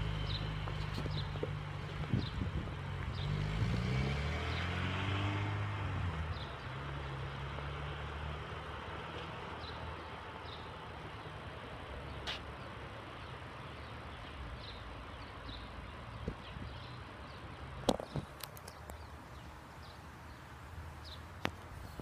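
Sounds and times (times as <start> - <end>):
car engine accelerating away: 0.0 - 9.2.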